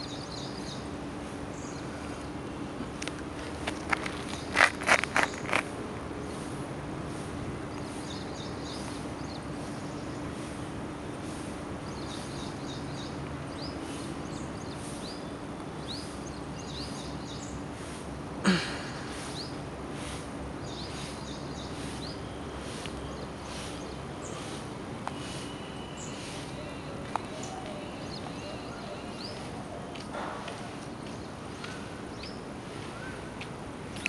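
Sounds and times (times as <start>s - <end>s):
small birds chirping: 0.0s - 6.5s, 7.1s - 34.0s
background noise with low hum: 0.0s - 34.0s.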